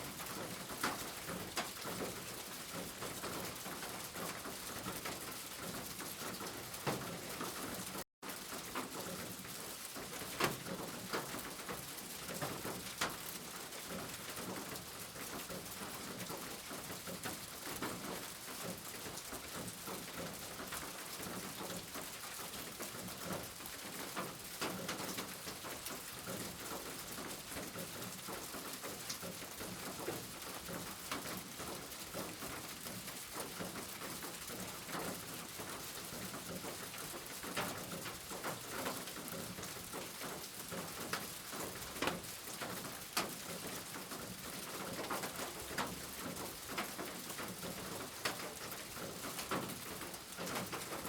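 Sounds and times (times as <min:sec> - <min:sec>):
steady rain falling: 0:00.0 - 0:51.0.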